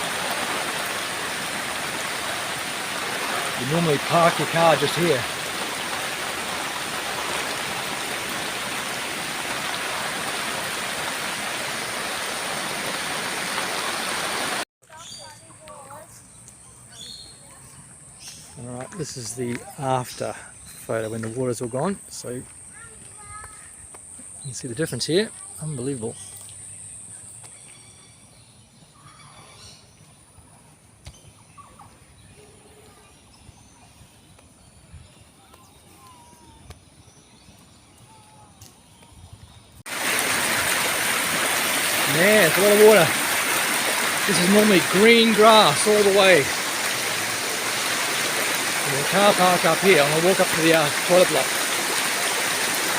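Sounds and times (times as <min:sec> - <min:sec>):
rushing floodwater: 0:00.0 - 0:14.7, 0:39.9 - 0:52.9.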